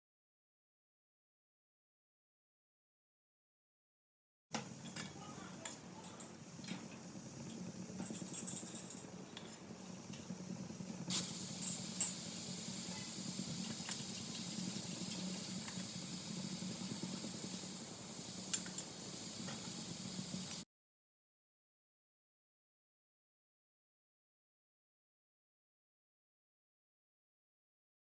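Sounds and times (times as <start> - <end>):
food sizzling in hot oil: 10.4 - 20.6.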